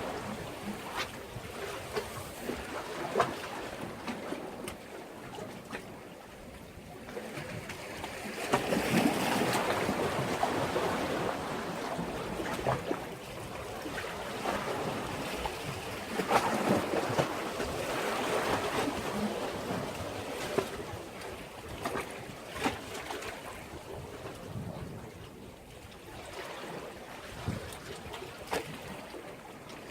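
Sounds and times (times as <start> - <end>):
sea waves washing against breakwater: 7.1 - 25.4.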